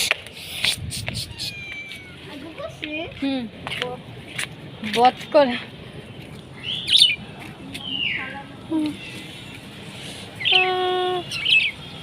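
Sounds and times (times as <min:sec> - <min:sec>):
bird chirping: 0:06.0 - 0:09.1, 0:10.4 - 0:11.9.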